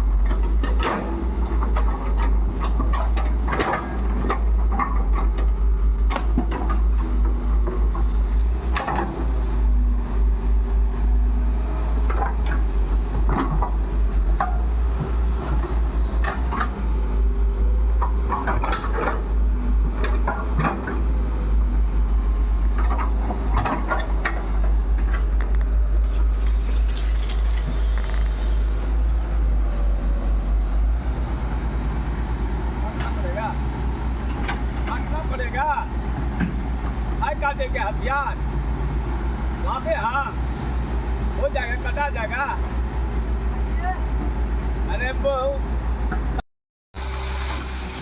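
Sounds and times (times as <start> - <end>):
diesel engine rumbling: 0.0 - 46.4, 47.0 - 48.0
metallic clanks and knocks: 0.2 - 9.3.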